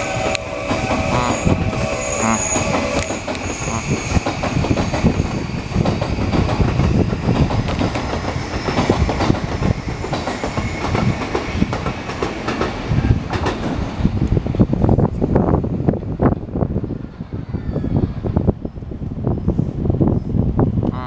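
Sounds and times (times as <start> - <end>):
train wheels clattering: 0.0 - 15.2
train rumble: 0.0 - 21.0.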